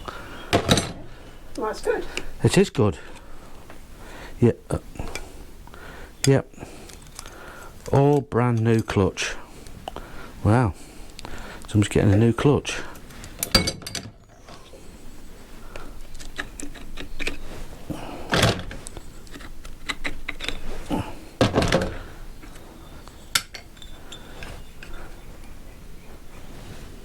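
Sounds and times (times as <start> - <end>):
metal parts clinking on workbench: 13.4 - 14.1.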